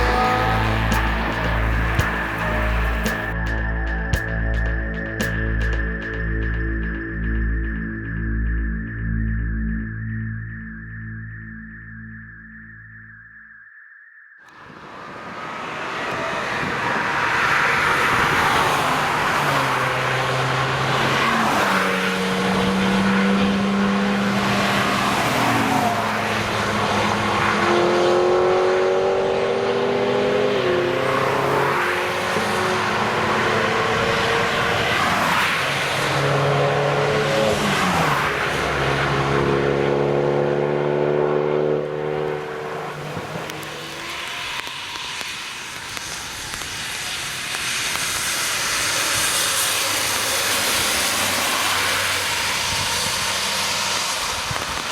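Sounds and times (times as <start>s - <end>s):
cars driving past revving: 0.0s - 7.0s, 14.6s - 54.9s
tyres hissing on wet road: 14.6s - 23.3s, 30.8s - 39.3s, 43.0s - 54.9s.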